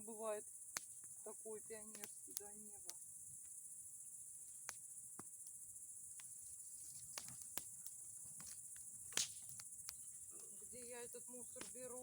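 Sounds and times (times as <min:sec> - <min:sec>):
bonfire crackling and popping: 0:00.0 - 0:12.0
crickets chirring: 0:00.0 - 0:12.0.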